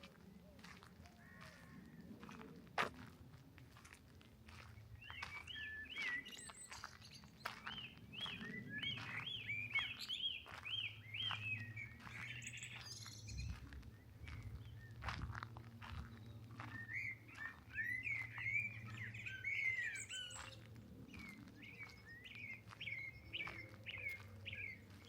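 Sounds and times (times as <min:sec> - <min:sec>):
footstep crunches: 0:00.0 - 0:09.1, 0:10.4 - 0:17.6
bird calls: 0:04.5 - 0:25.0
songbird singing whistled notes: 0:05.0 - 0:15.2, 0:16.1 - 0:25.0.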